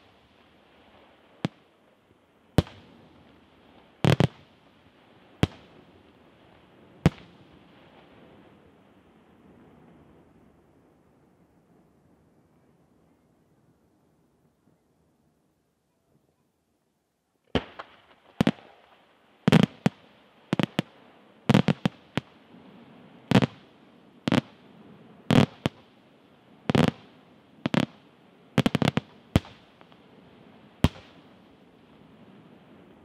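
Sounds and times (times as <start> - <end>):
faint hiss: 0.0 - 33.0
firework shells bursting: 21.5 - 22.3, 26.7 - 28.0.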